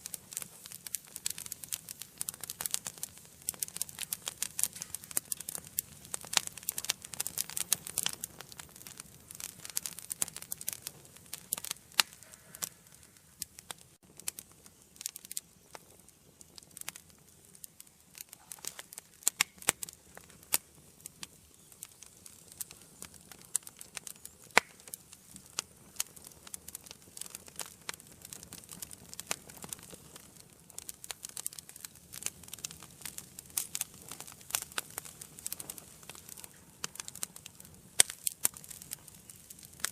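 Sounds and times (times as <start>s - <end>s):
soft low hiss of fire: 0.0s - 39.9s
wood fire crackling and popping: 0.0s - 39.9s.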